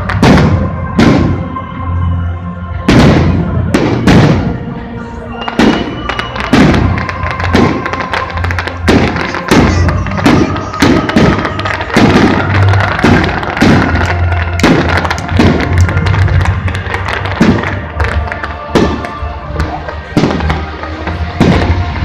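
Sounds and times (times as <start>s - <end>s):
music playing: 0.0s - 22.0s
firework shells bursting: 5.5s - 22.0s.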